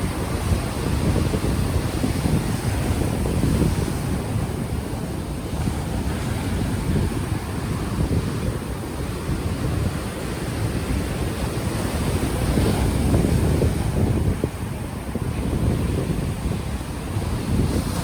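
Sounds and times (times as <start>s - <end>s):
ocean waves washing onto beach: 0.0s - 18.0s
wind buffeting microphone: 0.0s - 18.0s.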